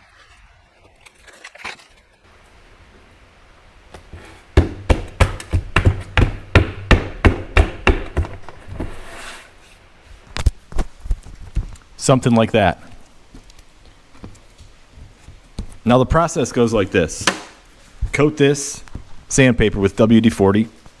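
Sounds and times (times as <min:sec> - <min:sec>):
soft rubbing: 0:02.2 - 0:04.8, 0:08.3 - 0:19.4
hands patting sandpaper on stone: 0:03.9 - 0:09.6
knocks: 0:04.0 - 0:08.9, 0:17.2 - 0:17.6.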